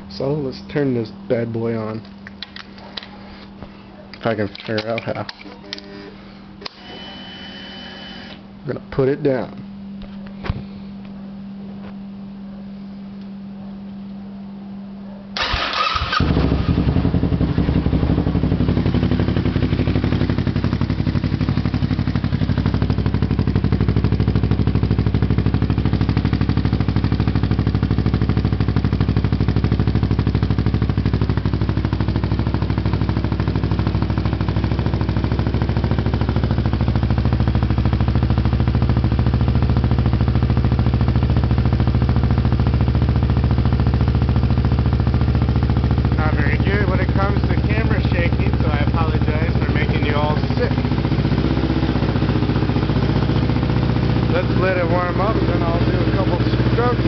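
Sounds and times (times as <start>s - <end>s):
motorcycle starter cranking: 15.4s - 16.9s
motorcycle engine idling: 15.4s - 57.0s.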